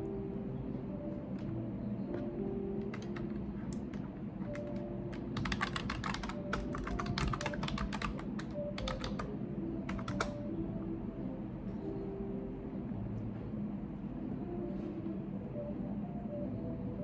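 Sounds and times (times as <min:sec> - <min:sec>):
typing on computer keyboard: 0:02.8 - 0:10.4.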